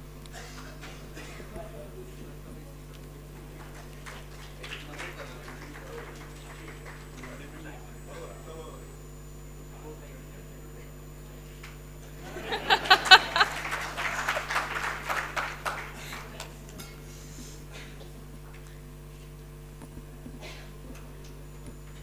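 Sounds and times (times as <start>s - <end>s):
audience applause: 3.4s - 7.9s, 12.2s - 16.7s.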